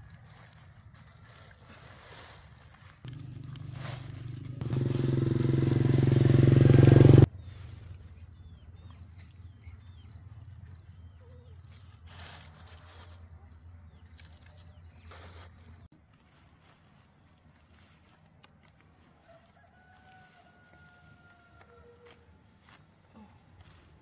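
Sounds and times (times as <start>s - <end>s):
small engine running: 3.1s - 7.3s.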